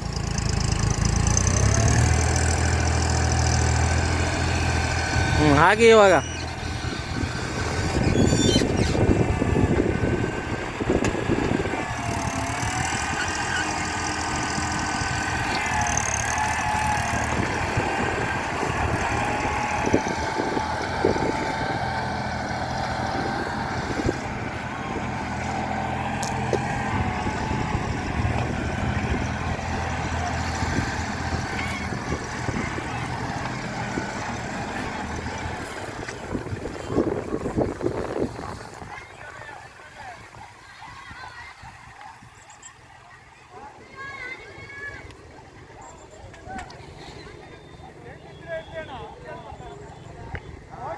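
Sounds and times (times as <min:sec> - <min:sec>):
hydraulic whine: 0:00.0 - 0:38.2
backhoe engine running: 0:00.0 - 0:43.1.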